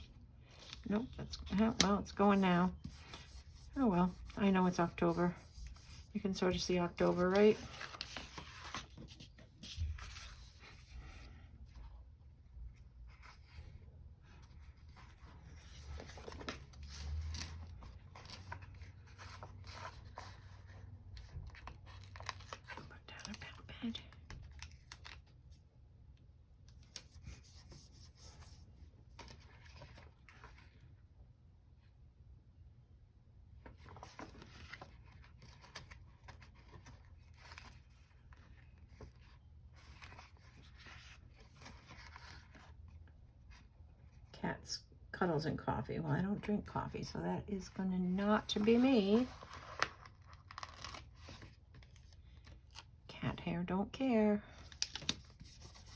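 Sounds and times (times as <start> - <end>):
paper rustling: 0.4 - 11.3, 14.4 - 22.9, 48.4 - 52.8, 54.6 - 55.9.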